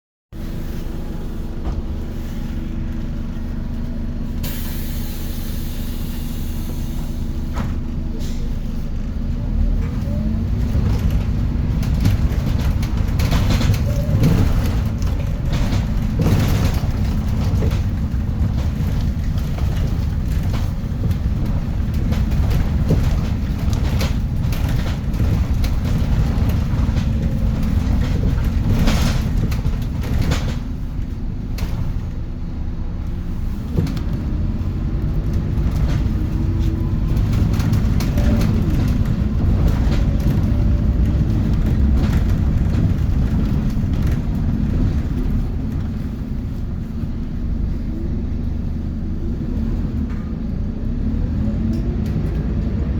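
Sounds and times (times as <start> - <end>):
bus diesel engine rumble: 0.4 - 52.9
rattles and knocks: 9.8 - 32.2, 33.7 - 46.9.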